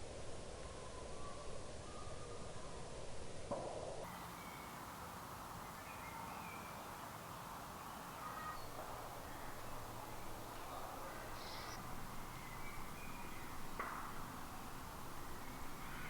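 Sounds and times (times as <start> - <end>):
low background hiss: 0.0 - 16.0
short bird calls: 7.8 - 9.7, 10.8 - 14.2.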